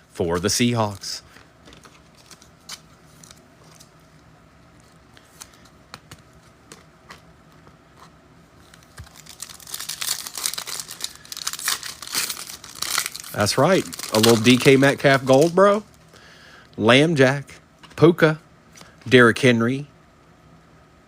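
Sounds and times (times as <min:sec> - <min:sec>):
foil wrapper tearing and crinkling: 0:08.6 - 0:15.9.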